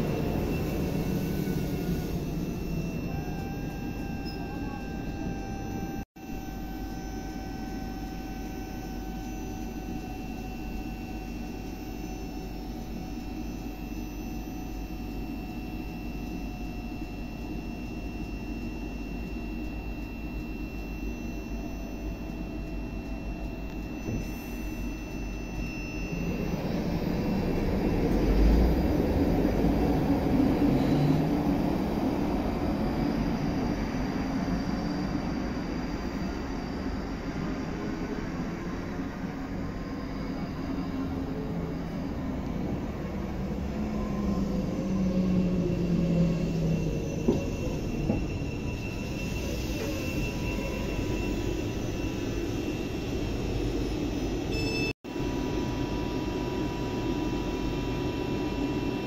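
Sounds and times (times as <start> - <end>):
train approaching: 0.0 - 6.0, 26.0 - 54.7
train rumble with motor whine: 0.0 - 59.0.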